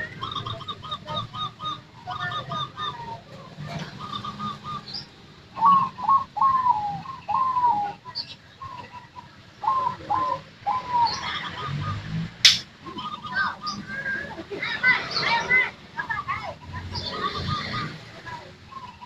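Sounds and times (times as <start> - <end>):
dove cooing: 0.0 - 5.0, 5.6 - 12.0
sharp click: 12.4 - 12.6.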